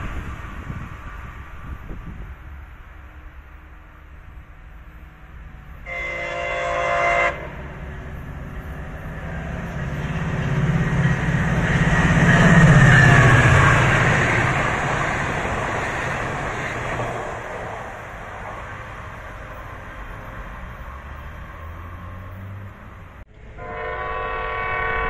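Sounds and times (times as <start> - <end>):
train passing at speed: 0.0 - 25.0
train horn blast: 5.8 - 7.8, 23.3 - 25.0.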